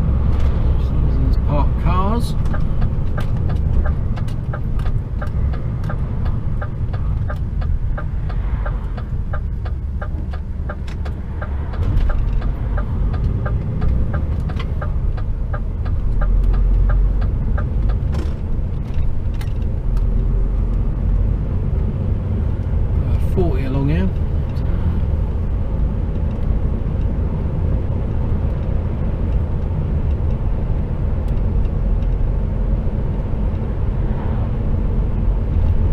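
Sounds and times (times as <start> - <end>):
truck engine low rumble: 0.0 - 35.9
regular ticking: 1.8 - 20.8.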